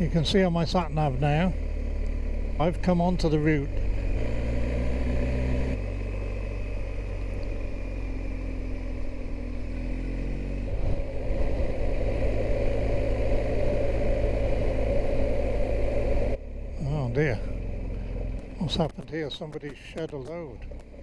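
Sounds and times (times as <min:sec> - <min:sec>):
motorcycle engine running: 0:00.0 - 0:21.0
road noise: 0:00.0 - 0:21.0
wind noise: 0:10.3 - 0:16.4.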